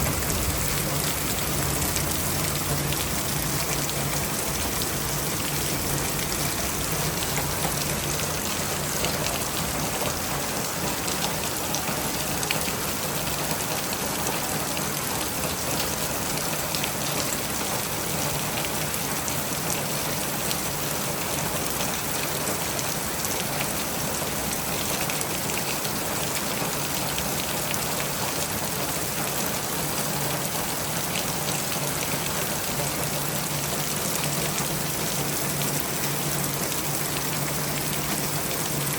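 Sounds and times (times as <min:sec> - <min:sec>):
rain drops ticking on a surface: 0:00.0 - 0:38.9.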